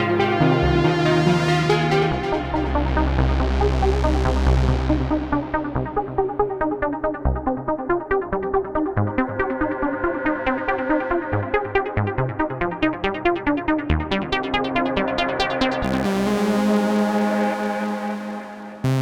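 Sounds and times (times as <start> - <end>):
synth bass line: 0.0 - 7.7, 15.8 - 19.0
synthesizer arpeggio: 0.0 - 8.4.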